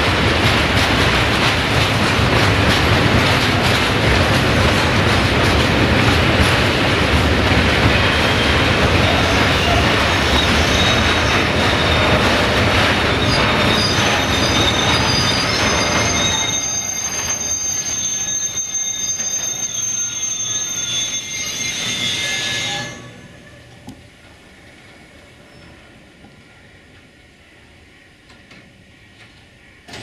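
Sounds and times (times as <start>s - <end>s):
train wheels on rails: 0.0s - 30.0s
high-pitched wheel squeal: 8.1s - 12.4s, 13.1s - 23.8s.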